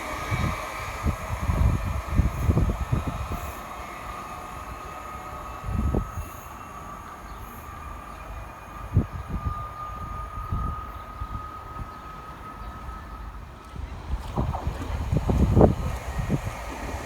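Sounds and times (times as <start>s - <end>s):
train high whine: 0.0s - 17.0s
low rumbling thumps: 13.9s - 17.0s.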